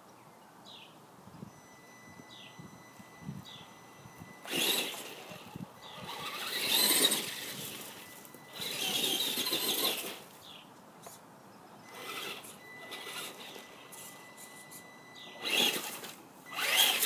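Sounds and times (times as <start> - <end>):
toy truck motor whining: 3.7 - 10.3, 11.9 - 17.0
tyres churning mulch: 4.4 - 10.6, 15.3 - 17.0.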